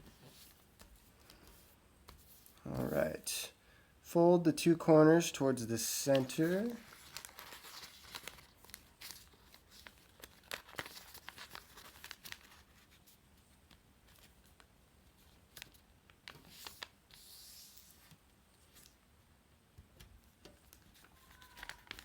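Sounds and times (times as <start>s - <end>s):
paper crinkling: 5.9s - 19.0s, 20.5s - 22.0s.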